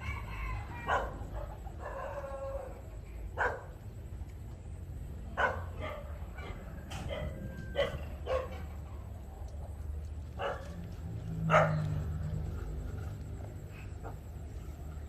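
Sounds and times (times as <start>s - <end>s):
dog barking: 0.8s - 2.7s, 3.4s - 3.8s, 5.3s - 8.9s, 10.4s - 10.8s, 11.4s - 12.1s.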